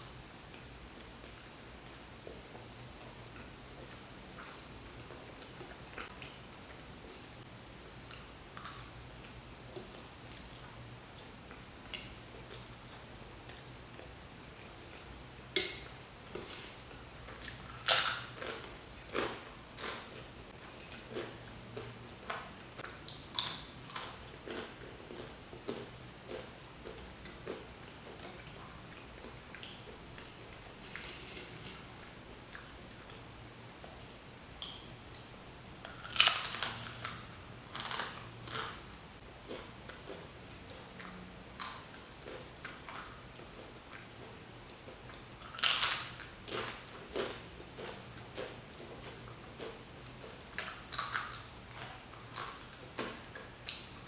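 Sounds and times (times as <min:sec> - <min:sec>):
person biting and chewing: 0:17.5 - 0:20.0, 0:23.3 - 0:26.5, 0:35.9 - 0:38.8, 0:45.5 - 0:47.4
crisp bites and crunches: 0:36.0 - 0:38.8, 0:45.6 - 0:46.2.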